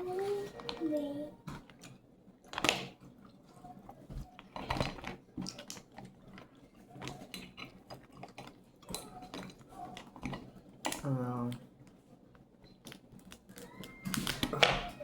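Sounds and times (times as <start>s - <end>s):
crab shells cracking: 4.3s - 11.9s, 12.7s - 15.0s.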